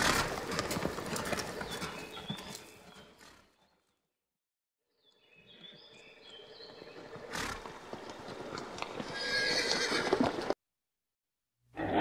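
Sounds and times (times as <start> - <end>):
horse whinnying: 9.0 - 10.5.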